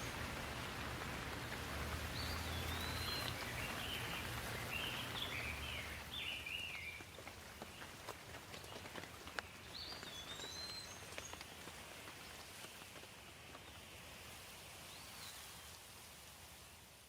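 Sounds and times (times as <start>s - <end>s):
raindrops tapping sharply: 0.0s - 6.2s
steady rain: 0.0s - 17.0s.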